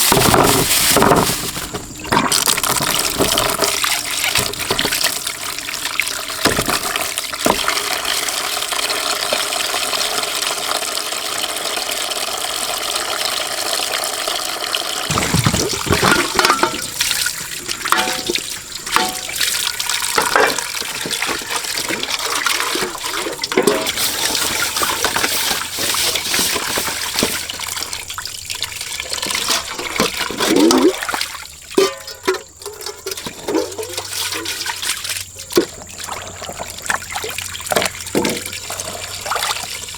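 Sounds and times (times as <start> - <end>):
water splashing and sloshing: 0.0 - 8.1, 15.1 - 39.9
water rushing: 15.1 - 19.0.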